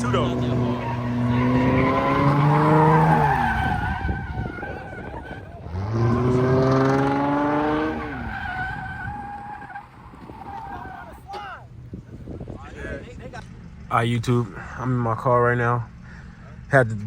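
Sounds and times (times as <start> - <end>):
car engine revving: 0.0 - 11.0
tyres squealing: 0.0 - 11.7.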